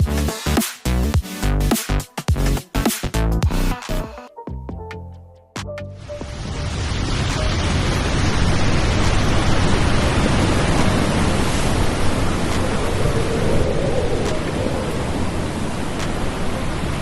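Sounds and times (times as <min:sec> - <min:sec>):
waterfall roaring: 0:06.3 - 0:17.0.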